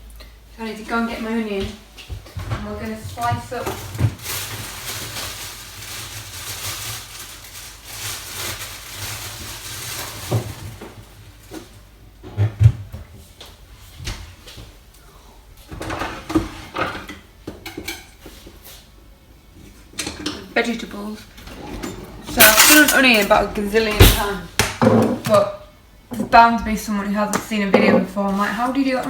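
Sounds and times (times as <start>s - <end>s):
rustling: 2.5s - 11.8s
items being set down: 21.4s - 25.5s.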